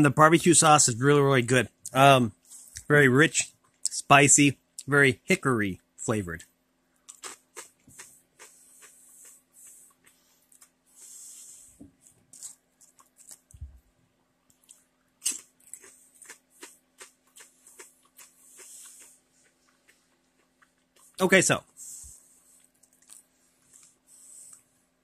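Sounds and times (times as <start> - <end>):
faint steady hum: 0.0 - 25.0
person chewing crunchy chips: 7.0 - 13.8, 14.5 - 21.2, 22.4 - 24.7.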